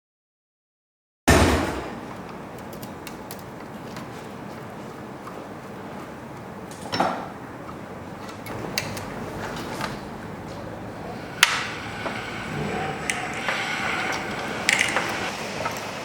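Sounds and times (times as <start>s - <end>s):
steady background hiss: 1.7s - 16.0s
sharp knocks and clinks: 6.7s - 7.4s.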